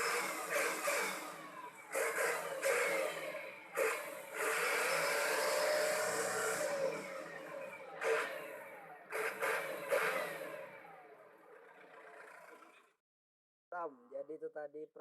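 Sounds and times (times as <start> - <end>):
truck engine revving with howling exhaust: 0.0 - 13.0.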